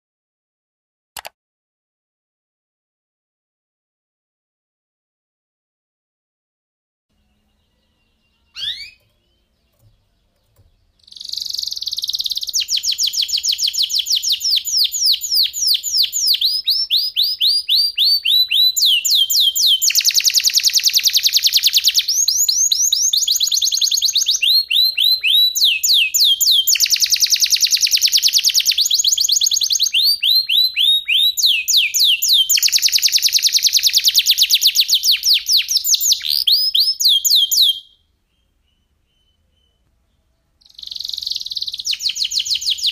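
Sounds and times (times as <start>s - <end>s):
canary singing: 7.1s - 42.9s.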